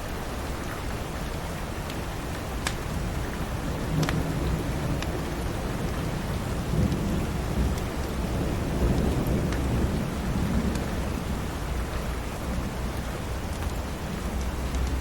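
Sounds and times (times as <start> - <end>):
steady rain: 0.0 - 15.0
faint ticks: 2.6 - 2.8, 3.9 - 4.2, 14.4 - 15.0.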